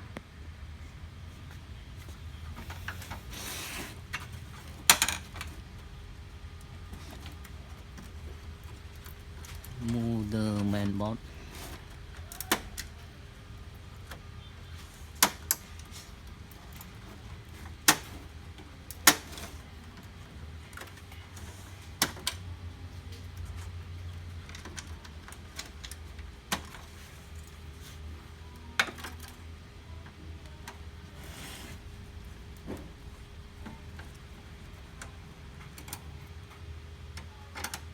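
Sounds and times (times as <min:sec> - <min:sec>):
plastic printer parts clicking: 0:06.6 - 0:22.5.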